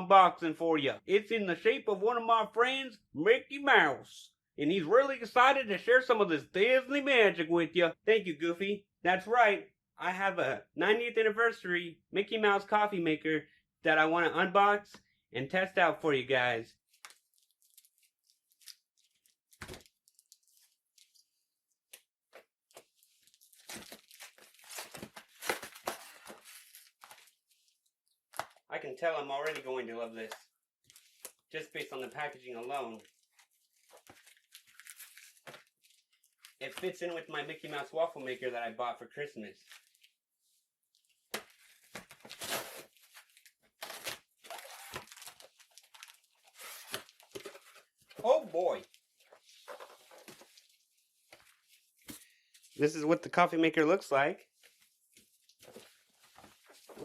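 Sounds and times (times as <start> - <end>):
packaging tearing and crinkling: 23.3 - 27.3, 42.0 - 47.4.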